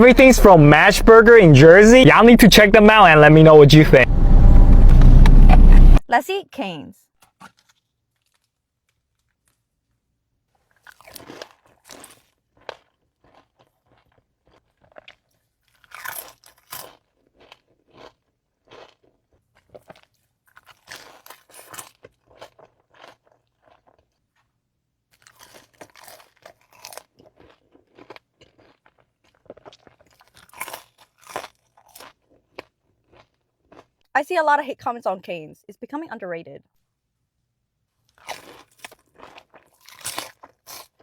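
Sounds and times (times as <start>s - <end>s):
chewing crunchy fried food: 7.2s - 34.1s, 37.9s - 41.0s.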